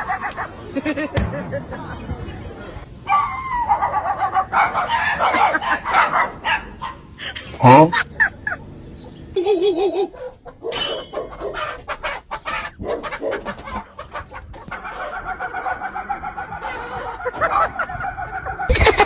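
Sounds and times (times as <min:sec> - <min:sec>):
person imitating chicken clucks: 0:09.3 - 0:10.6, 0:11.4 - 0:19.0.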